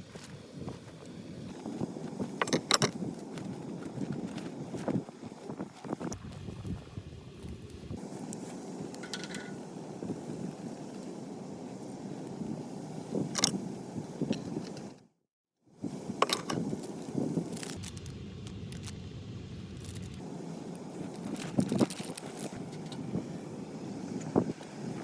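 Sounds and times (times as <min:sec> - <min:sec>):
steady outdoor rumble: 0:00.0 - 0:15.1, 0:15.8 - 0:25.0
clinks and scrapes of handling: 0:01.5 - 0:06.1, 0:08.1 - 0:09.6, 0:16.2 - 0:19.0, 0:19.7 - 0:23.1.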